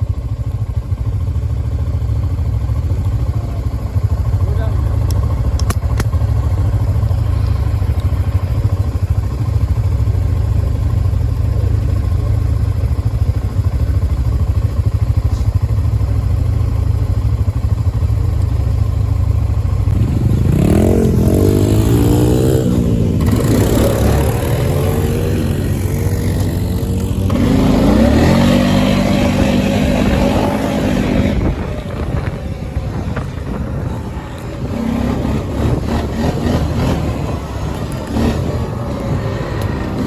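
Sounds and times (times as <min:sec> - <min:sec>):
dirt bike engine revving: 0:19.8 - 0:40.0.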